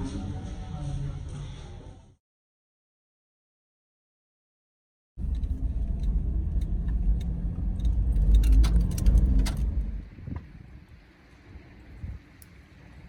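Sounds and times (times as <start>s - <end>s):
car engine rumble: 5.2s - 13.0s.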